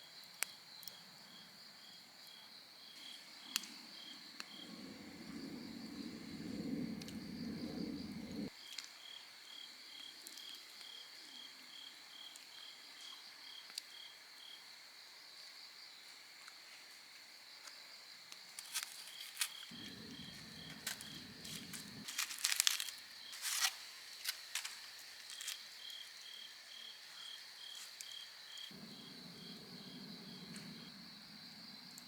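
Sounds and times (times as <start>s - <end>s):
crickets chirping: 0.0s - 16.4s, 17.2s - 32.0s
high insect trill: 2.8s - 8.5s, 18.7s - 32.0s
low hum: 4.6s - 8.5s, 19.8s - 22.0s, 28.8s - 32.0s
crinkling and sharp clicks: 18.6s - 25.6s.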